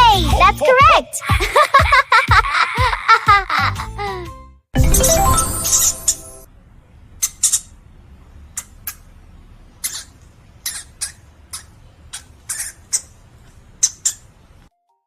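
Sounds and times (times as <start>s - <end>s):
small animal squeaks: 7.2s - 7.8s, 9.8s - 13.2s, 13.8s - 14.3s.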